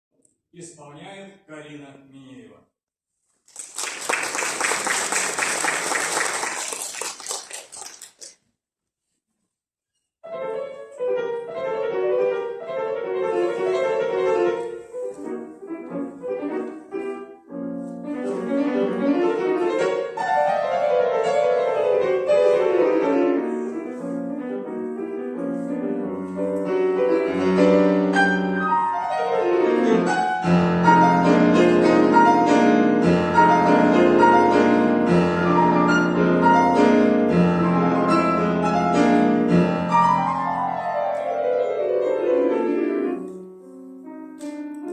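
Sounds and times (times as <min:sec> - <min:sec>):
solo classical piano: 0:10.2 - 0:44.9.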